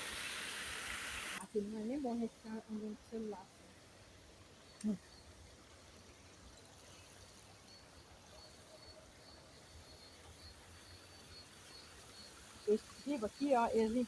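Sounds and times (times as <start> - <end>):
faint outdoor ambience: 0.0 - 14.0.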